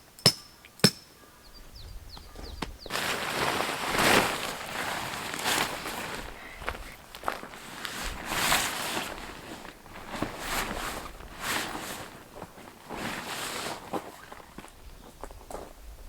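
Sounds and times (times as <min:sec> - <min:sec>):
footsteps: 0:02.2 - 0:15.7
gear rustling and swishing: 0:02.9 - 0:14.8.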